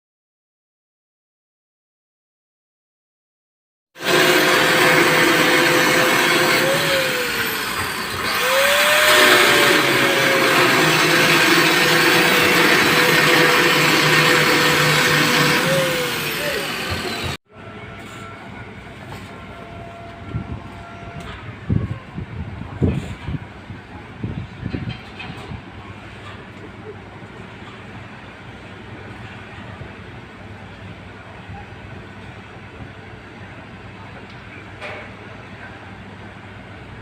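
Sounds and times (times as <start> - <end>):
welding machine hum: 4.0 - 17.4.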